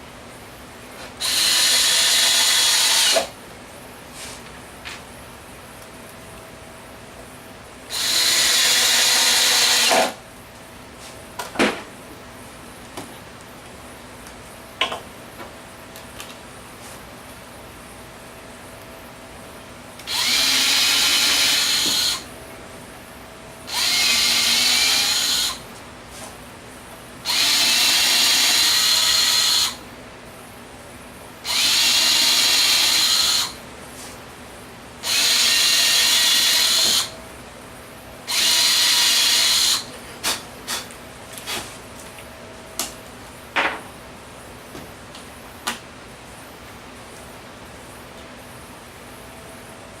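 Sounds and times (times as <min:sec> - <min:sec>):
power drill whining: 0:01.2 - 0:03.3, 0:07.9 - 0:10.2, 0:20.0 - 0:22.3, 0:23.7 - 0:25.6, 0:27.3 - 0:29.8, 0:31.5 - 0:33.6, 0:35.0 - 0:37.1, 0:38.3 - 0:39.9.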